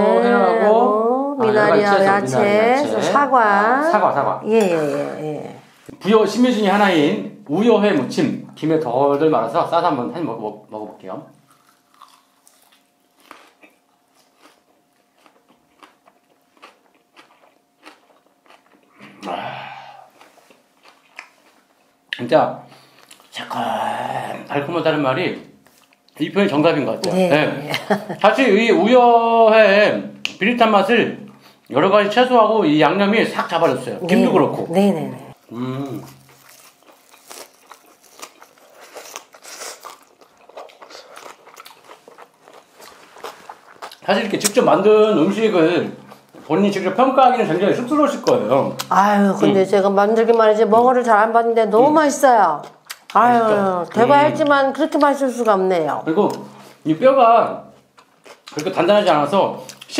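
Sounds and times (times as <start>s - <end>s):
person chewing crunchy food: 11.4s - 22.1s, 35.3s - 44.6s, 57.8s - 58.7s
wet mouth sounds: 52.6s - 53.2s.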